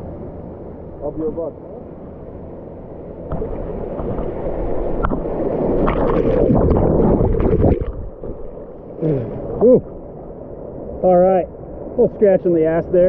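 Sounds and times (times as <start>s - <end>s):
river water rushing and splashing: 3.3s - 12.8s.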